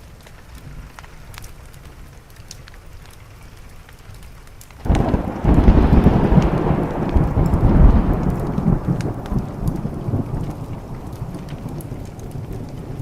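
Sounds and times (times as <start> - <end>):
wood fire crackling: 0.0 - 13.0
thunder clap rumbling: 4.8 - 13.0.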